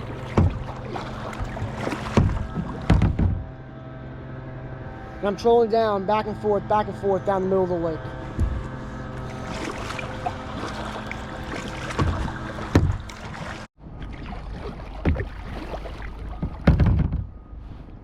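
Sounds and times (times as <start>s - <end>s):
kayak moving through water: 0.0s - 5.4s, 8.0s - 18.0s
knocks on kayak hull: 0.2s - 3.5s, 11.9s - 13.2s, 16.4s - 17.3s
loud thump: 1.4s - 3.5s.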